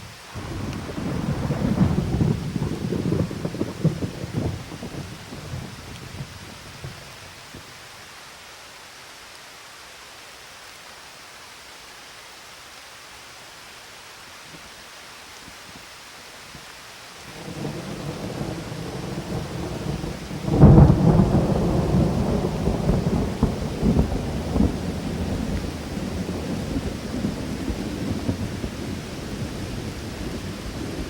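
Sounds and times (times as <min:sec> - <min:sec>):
steady rain hiss: 0:00.0 - 0:31.0
thunder rumbling: 0:00.3 - 0:07.6, 0:17.3 - 0:31.0.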